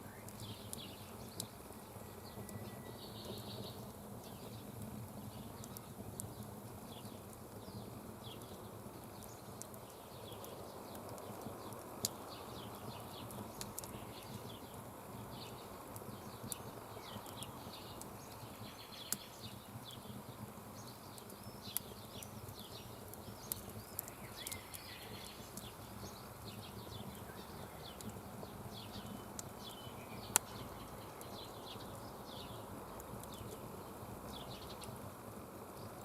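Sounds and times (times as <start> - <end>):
campfire cracks: 0.0 - 36.0
small birds chirping: 0.0 - 36.0.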